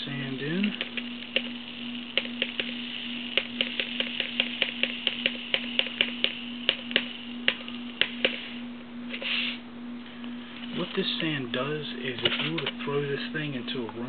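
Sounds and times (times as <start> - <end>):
steady low hum: 0.0 - 14.0
hiss of running sand: 9.1 - 9.6.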